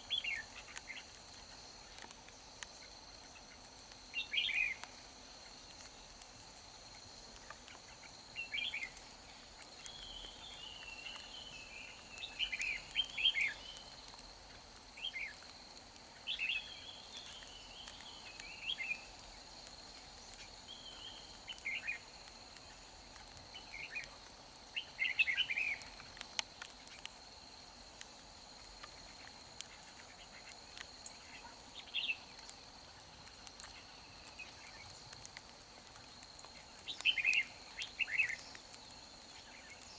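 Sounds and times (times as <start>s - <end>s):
high insect whine: 0.0s - 39.9s
bird singing warbled phrases: 9.8s - 13.9s, 24.8s - 25.9s, 36.8s - 38.5s.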